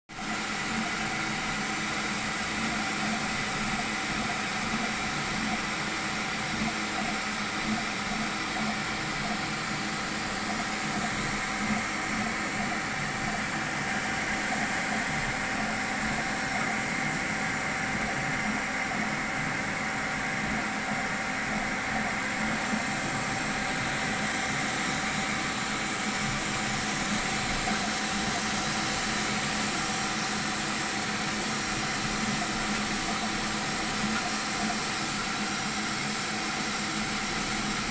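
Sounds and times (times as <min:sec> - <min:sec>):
printer fans whirring: 0:00.1 - 0:37.9.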